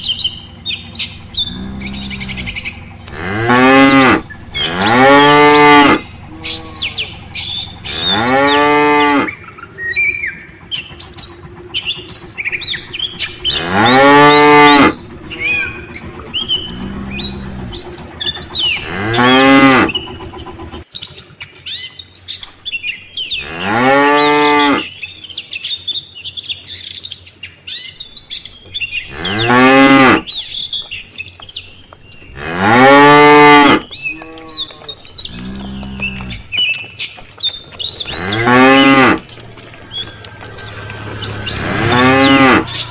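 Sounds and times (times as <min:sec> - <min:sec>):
small birds chirping: 0:00.0 - 0:42.9
cattle mooing: 0:01.2 - 0:09.5, 0:12.6 - 0:20.8, 0:23.4 - 0:24.9, 0:28.8 - 0:30.4, 0:32.1 - 0:36.6, 0:37.8 - 0:42.9.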